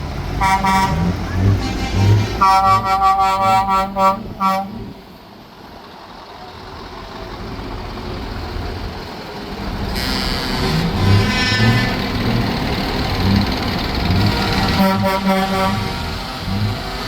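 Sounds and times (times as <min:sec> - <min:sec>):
vehicle rumble: 0:00.0 - 0:17.0
truck air horn toots: 0:00.4 - 0:04.9, 0:09.9 - 0:12.3, 0:14.1 - 0:17.0.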